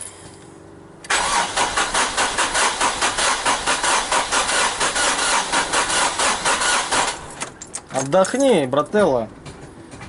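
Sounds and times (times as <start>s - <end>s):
starter cranking diesel engine: 1.1s - 7.4s.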